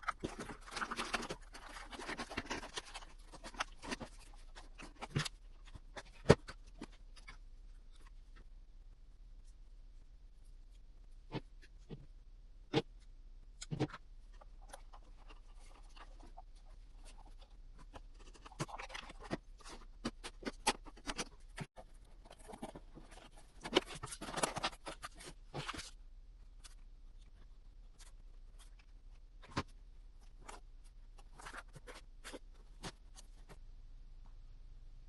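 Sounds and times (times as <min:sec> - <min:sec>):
cardboard scratching and rustling: 0:00.0 - 0:07.1, 0:14.7 - 0:26.0.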